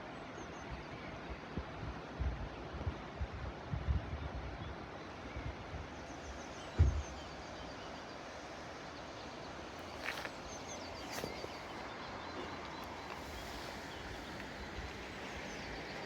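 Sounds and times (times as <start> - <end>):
small birds chirping: 5.4 - 16.0
low thump: 6.8 - 7.1.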